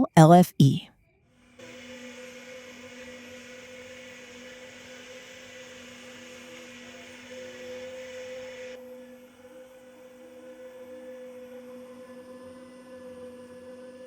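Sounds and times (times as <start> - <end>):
even hiss: 1.6 - 8.8.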